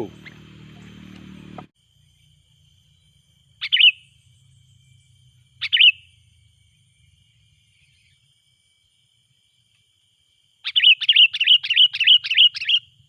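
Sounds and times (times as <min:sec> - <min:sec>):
bulbul short sharp calls: 0:00.0 - 0:01.7, 0:05.6 - 0:06.1
low hum: 0:00.0 - 0:03.4.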